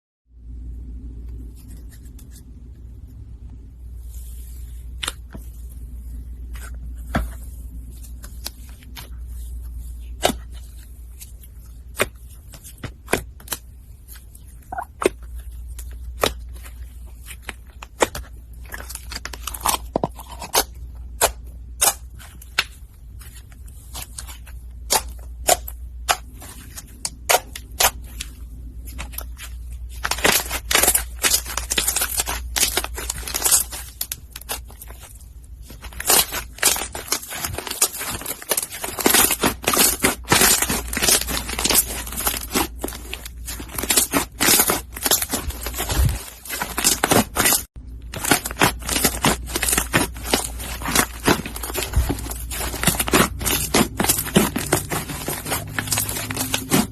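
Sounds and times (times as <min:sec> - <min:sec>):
foam slime popping and crackling: 0:35.9 - 0:56.9.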